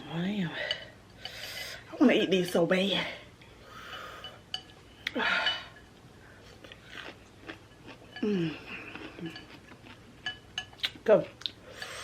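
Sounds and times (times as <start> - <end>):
chewing with wet clicks and smacks: 8.8 - 11.6.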